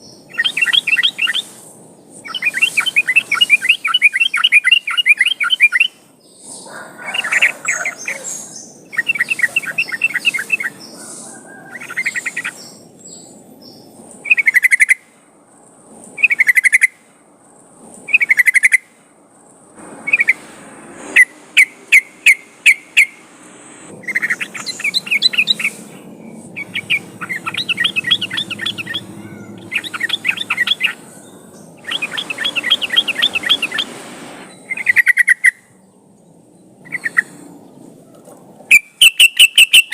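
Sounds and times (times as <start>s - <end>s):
bulbul singing: 0.0s - 1.6s, 2.2s - 6.6s, 7.2s - 15.0s, 21.1s - 35.9s, 36.8s - 37.9s, 38.7s - 39.9s.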